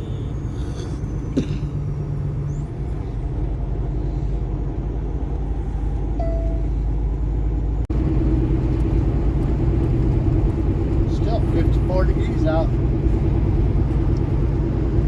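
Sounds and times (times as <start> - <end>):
road rumble: 0.0 - 15.0
truck engine drone: 0.0 - 15.0.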